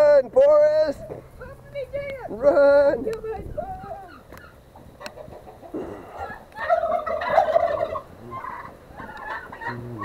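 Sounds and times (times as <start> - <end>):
turkeys gobbling: 3.9 - 10.0.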